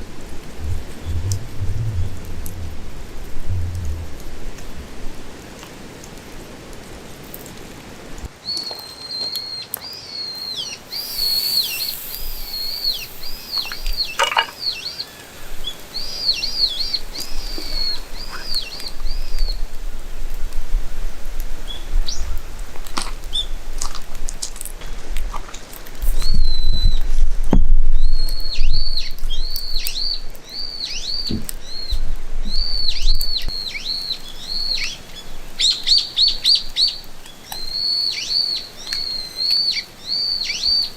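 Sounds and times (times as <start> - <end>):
songbird singing: 0.0 - 5.4, 8.4 - 20.0, 26.2 - 40.9
low rumble: 0.0 - 6.4.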